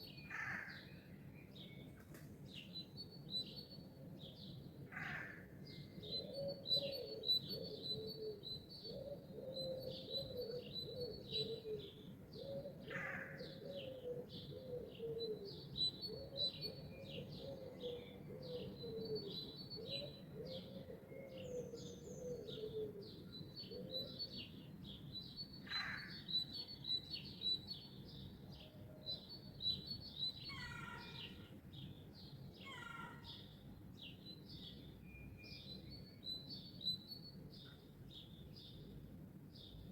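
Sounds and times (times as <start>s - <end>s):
songbirds chirping and trilling: 0.0s - 39.9s
loud low bird calls: 4.9s - 5.5s, 30.5s - 31.5s, 32.6s - 33.5s.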